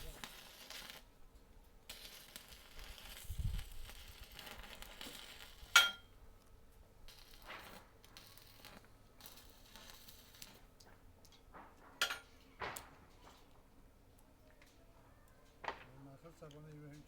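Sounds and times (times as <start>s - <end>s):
faint crackle: 0.0s - 17.0s
sharp metallic clink: 5.8s - 6.1s.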